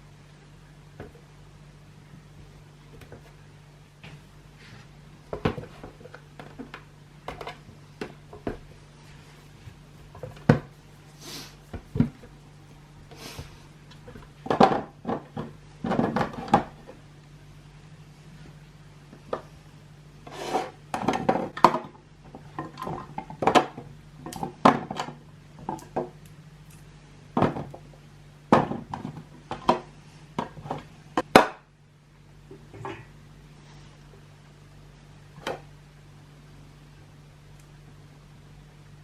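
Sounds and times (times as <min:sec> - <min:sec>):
steady low hum: 0:00.0 - 0:39.0
containers clattering on shelves: 0:14.1 - 0:16.9, 0:20.3 - 0:26.1, 0:27.4 - 0:27.8, 0:28.5 - 0:31.6.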